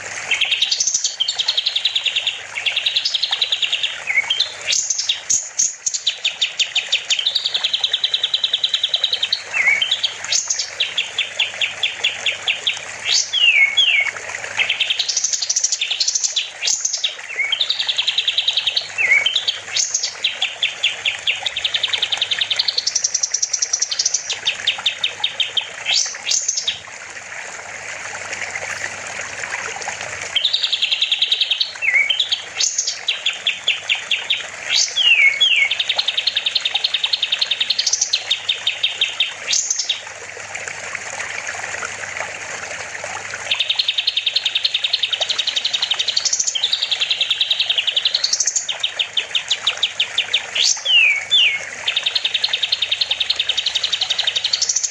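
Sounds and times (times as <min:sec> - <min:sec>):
songbird singing: 0:00.0 - 0:26.8, 0:30.2 - 0:40.0, 0:43.5 - 0:54.9
rushing water hiss: 0:25.9 - 0:31.0.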